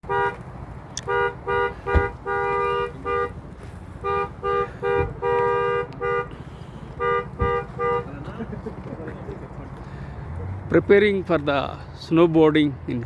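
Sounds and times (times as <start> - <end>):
two-tone horn honking: 0.0 - 0.4, 1.0 - 8.2.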